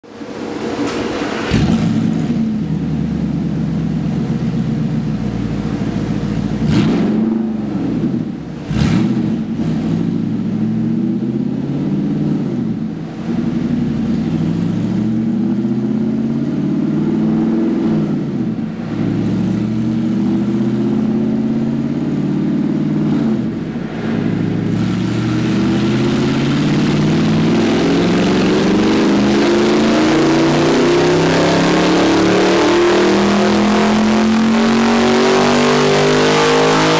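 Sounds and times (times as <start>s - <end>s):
car engine idling and revving: 0.0s - 36.9s
exhaust cracks: 0.2s - 35.6s.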